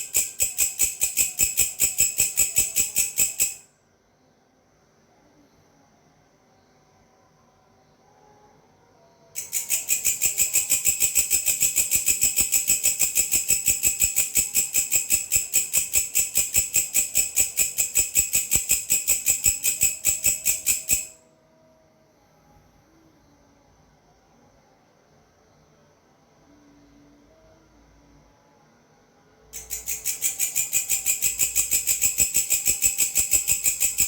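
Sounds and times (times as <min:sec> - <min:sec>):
grasshopper stridulating: 0:00.0 - 0:03.6, 0:09.4 - 0:21.2, 0:29.6 - 0:34.0.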